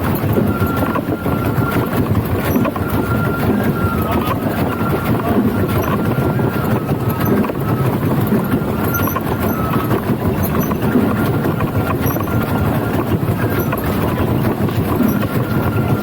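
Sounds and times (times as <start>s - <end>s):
float wheels rumbling: 0.0s - 16.0s
high squeal: 8.8s - 11.0s, 12.0s - 12.5s.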